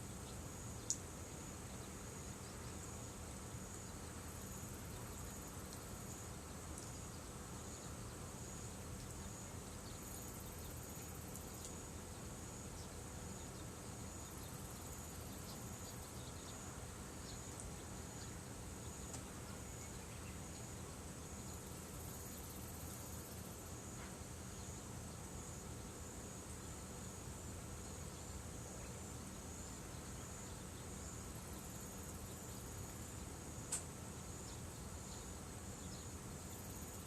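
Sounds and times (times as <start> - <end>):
insects trilling: 0.0 - 37.0
higher insect trill: 0.1 - 37.0.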